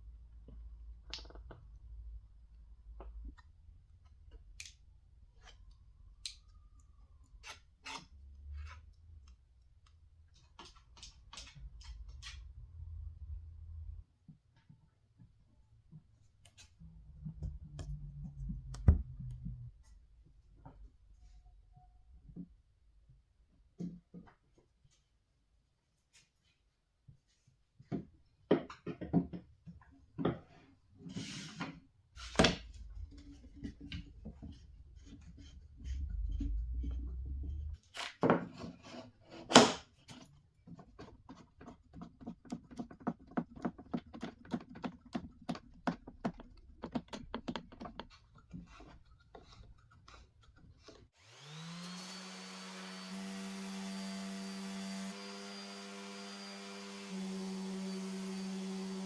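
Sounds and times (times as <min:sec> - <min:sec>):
low rumble: 0:35.6 - 0:37.8
electric motor whining: 0:51.2 - 0:59.0.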